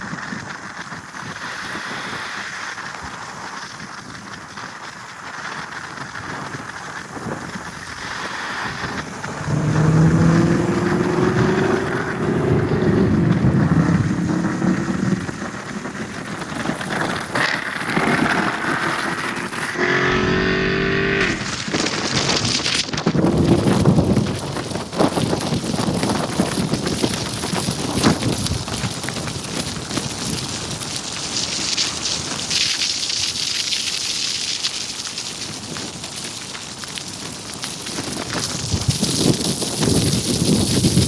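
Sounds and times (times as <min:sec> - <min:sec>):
rain and wet road noise: 0:00.0 - 0:41.0
car engine accelerating: 0:08.6 - 0:17.2, 0:17.8 - 0:21.7.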